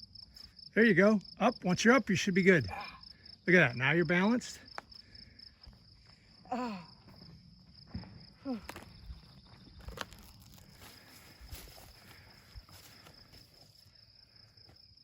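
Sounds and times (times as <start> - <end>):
crickets chirping: 0.0 - 15.0
short grunt: 2.6 - 3.0, 6.5 - 7.0
woman's strained exclamation: 6.5 - 7.0
footsteps crunching on ground: 7.1 - 13.9.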